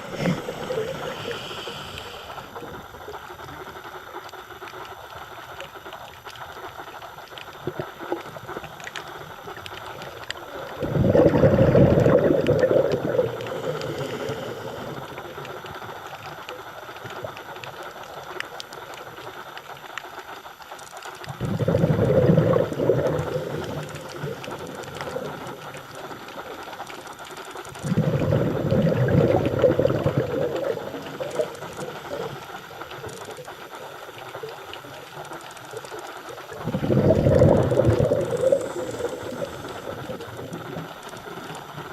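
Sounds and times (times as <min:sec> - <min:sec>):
diver exhaling bubbles: 0:00.0 - 0:03.2, 0:09.8 - 0:16.0, 0:21.3 - 0:26.5, 0:27.7 - 0:32.9, 0:36.4 - 0:41.9
faint crackling clicks: 0:00.0 - 0:41.9.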